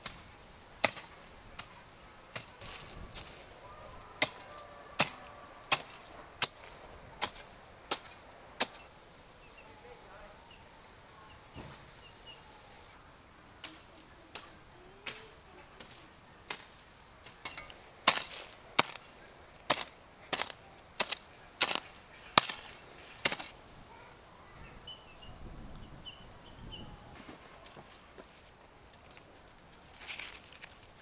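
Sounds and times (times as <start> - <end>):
sharp chopping knocks: 19.7 - 23.5.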